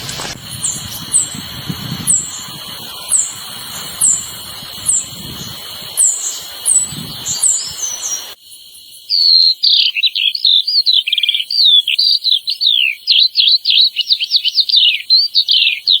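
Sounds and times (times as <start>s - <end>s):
bird twittering song: 0.0s - 8.4s, 9.0s - 16.0s
high insect-like buzz: 0.0s - 9.1s.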